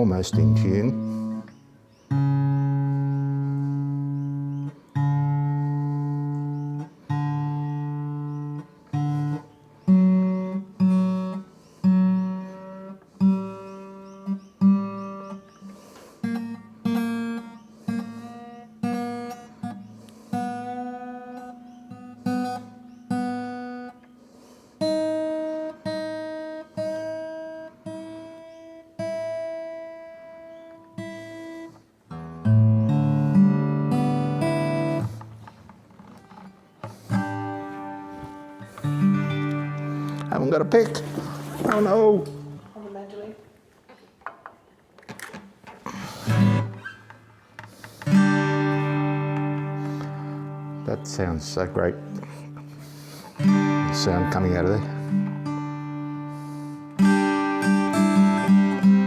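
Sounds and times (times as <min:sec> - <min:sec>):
guitar strings plucked: 0:32.2 - 0:42.6, 0:46.2 - 0:59.0.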